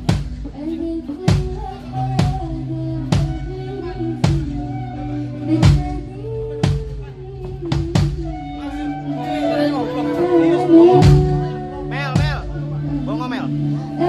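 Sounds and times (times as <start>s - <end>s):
drum beat: 0.0s - 0.5s, 11.0s - 12.5s
held bass line: 0.0s - 14.0s
sustained melody notes: 0.0s - 14.0s.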